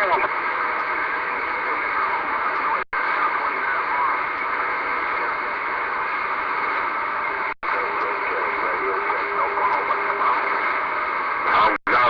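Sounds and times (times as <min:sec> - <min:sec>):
faint garbled radio voices: 0:00.0 - 0:12.0
radio static hiss: 0:00.0 - 0:12.0.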